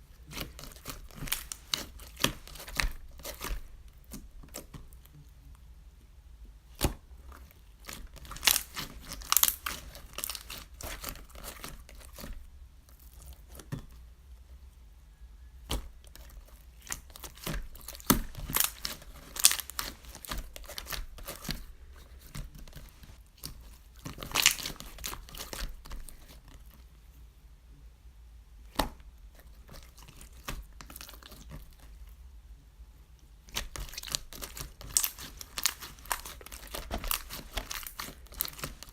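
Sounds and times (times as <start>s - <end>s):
crinkly packaging rustling: 0.3s - 3.7s, 7.9s - 12.3s, 16.0s - 26.8s, 33.6s - 38.9s.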